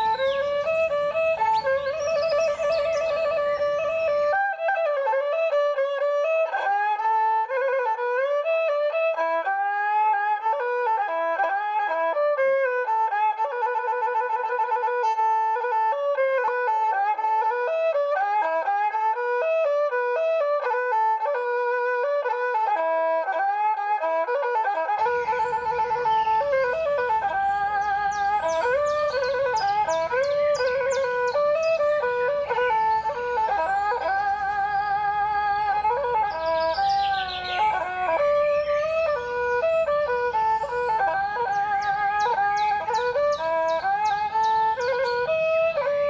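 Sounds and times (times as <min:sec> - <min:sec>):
bowed string melody with vibrato: 0:00.0 - 0:06.5, 0:24.9 - 0:46.0.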